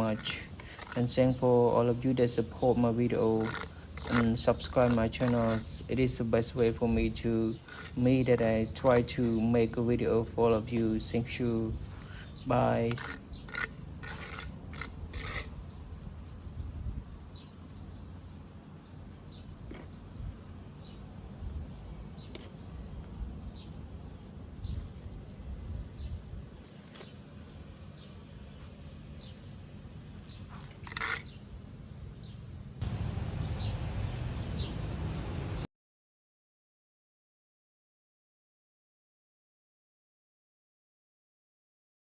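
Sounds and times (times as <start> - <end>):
rustling scrapes: 0.0 - 1.3, 2.6 - 5.8, 7.6 - 9.4, 11.8 - 15.6, 30.1 - 31.4
birds chirping: 0.0 - 35.7.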